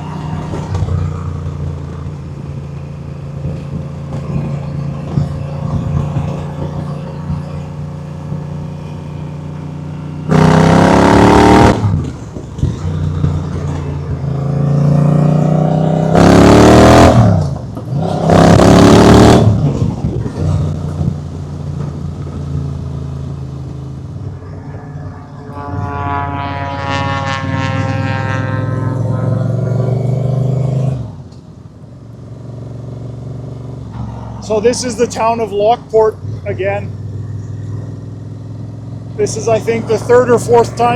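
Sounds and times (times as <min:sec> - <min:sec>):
motorcycle engine revving: 0:00.0 - 0:31.3
rush of noise: 0:24.0 - 0:28.0.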